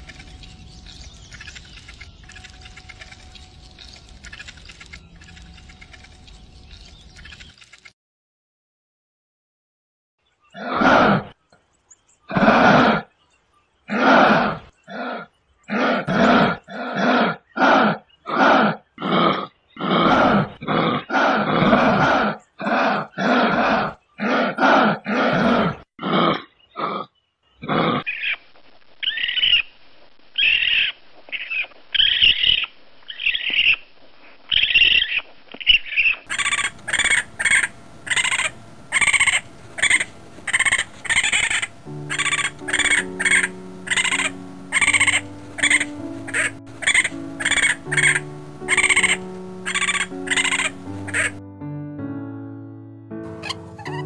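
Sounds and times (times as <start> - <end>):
higher animal calls: 10.5 - 11.4, 12.3 - 13.1, 13.9 - 28.4, 35.9 - 51.4, 53.4 - 54.0
rough animal calls: 10.5 - 11.4, 12.3 - 13.1, 13.9 - 28.4, 34.5 - 51.4
quick high chirping calls: 34.5 - 51.4.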